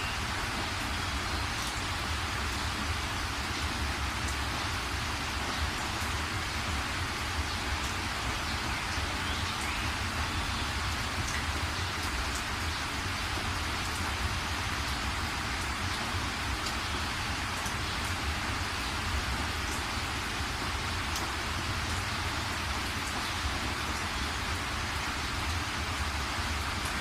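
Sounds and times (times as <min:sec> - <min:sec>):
steady rain hiss: 0:00.0 - 0:27.0.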